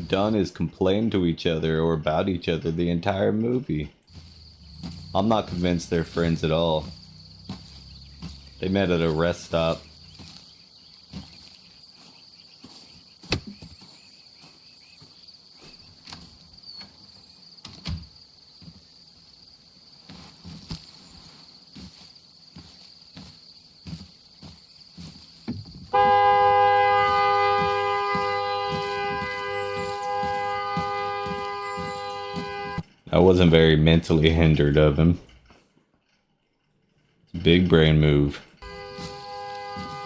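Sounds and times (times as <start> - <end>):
crickets droning: 4.1 - 35.2, 37.4 - 40.0
car horn blaring: 5.0 - 10.0, 25.9 - 32.9, 38.6 - 40.0.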